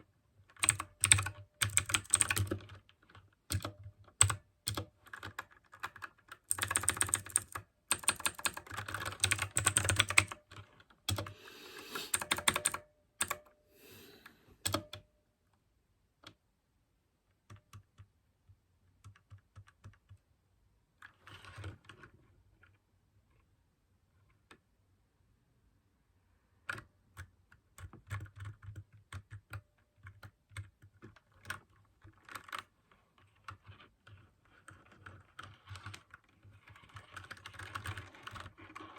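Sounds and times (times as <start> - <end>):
mechanical keyboard typing: 0.5 - 13.5, 14.6 - 15.0, 19.0 - 20.2, 26.7 - 38.9.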